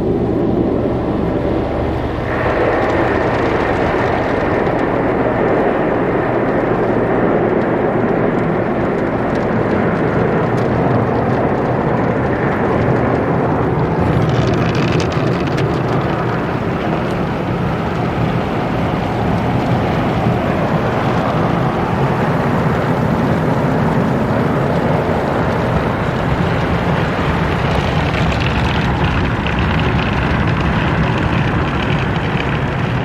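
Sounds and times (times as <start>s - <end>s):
car wash water spray and machinery: 0.0s - 33.0s.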